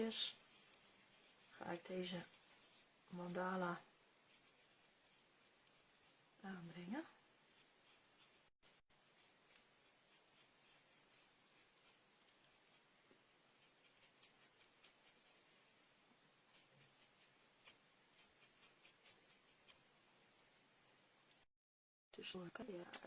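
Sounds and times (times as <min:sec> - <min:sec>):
soft ticks and brushing: 0:00.0 - 0:21.4.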